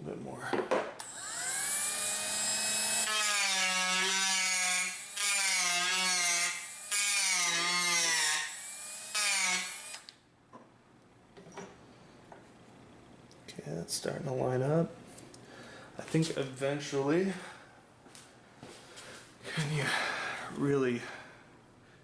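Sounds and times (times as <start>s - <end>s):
rotary tool cutting wood: 1.0s - 10.1s.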